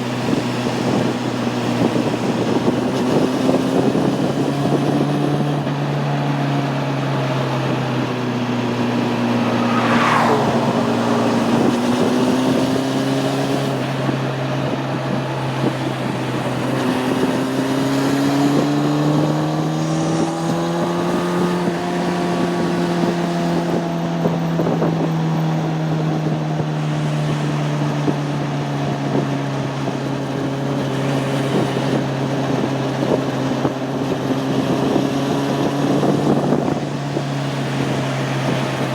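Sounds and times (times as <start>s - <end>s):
wind rushing over microphone: 6.4s - 30.4s
falling whine: 8.0s - 13.7s.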